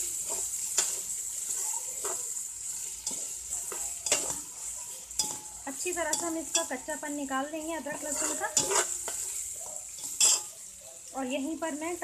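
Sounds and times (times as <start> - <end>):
food sizzling in oil: 0.0 - 12.0
spoon knocking and scraping pot: 3.0 - 4.6, 5.2 - 6.9, 7.8 - 10.6.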